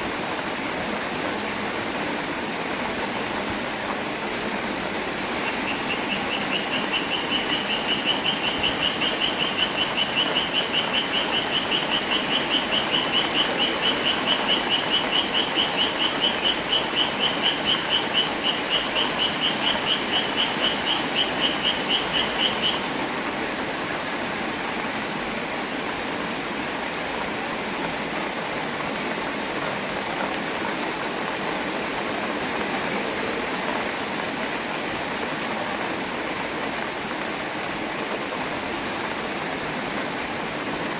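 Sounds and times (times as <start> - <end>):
steady rain: 0.0 - 40.9
pulsing high tone: 4.2 - 14.2.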